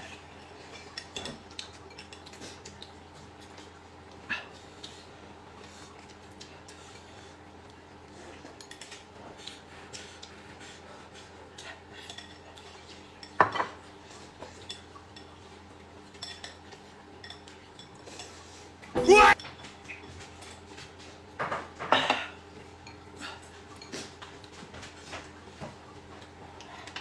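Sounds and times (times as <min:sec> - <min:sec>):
utensils clinking against dishes: 0:00.6 - 0:02.9, 0:11.9 - 0:15.5, 0:16.1 - 0:20.6, 0:21.4 - 0:25.3.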